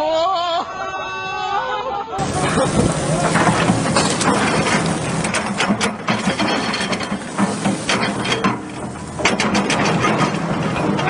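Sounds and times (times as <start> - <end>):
mechanical clattering and rattling: 2.2 - 11.0.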